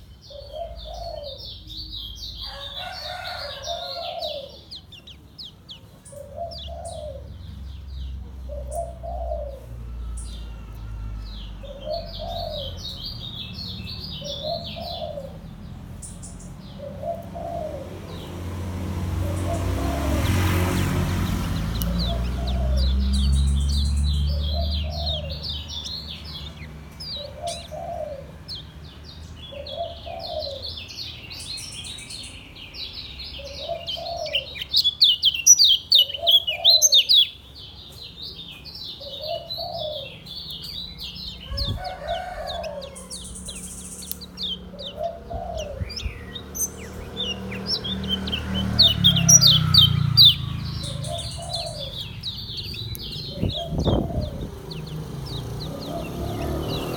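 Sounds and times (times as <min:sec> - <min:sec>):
dove cooing: 0:00.3 - 0:01.5, 0:02.5 - 0:04.7, 0:05.8 - 0:10.7, 0:11.6 - 0:13.1, 0:14.2 - 0:15.6, 0:16.7 - 0:18.3, 0:19.2 - 0:25.8, 0:26.4 - 0:28.6, 0:29.4 - 0:30.8, 0:33.4 - 0:34.9, 0:36.0 - 0:37.2, 0:39.0 - 0:40.3, 0:41.4 - 0:56.9
bird singing rapid high chirps: 0:19.0 - 0:41.9, 0:42.6 - 0:56.9.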